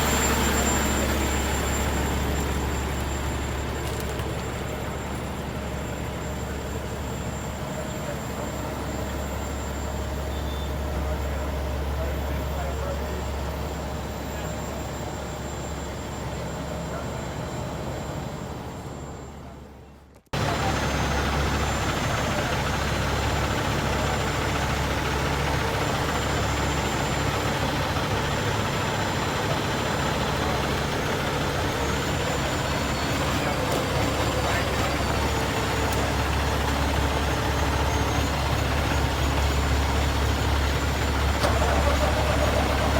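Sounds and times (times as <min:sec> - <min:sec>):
heavy truck engine idling: 0:00.0 - 0:42.9.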